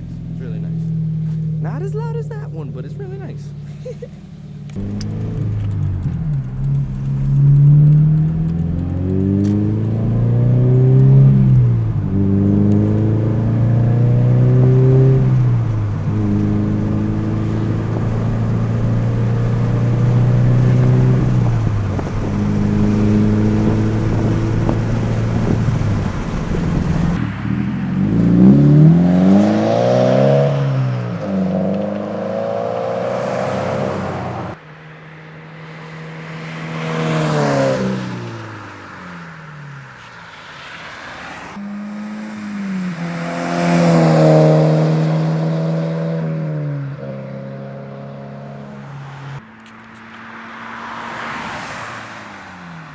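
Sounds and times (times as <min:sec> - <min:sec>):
car engine revving: 0:00.0 - 0:52.9
car driving past: 0:19.7 - 0:52.9.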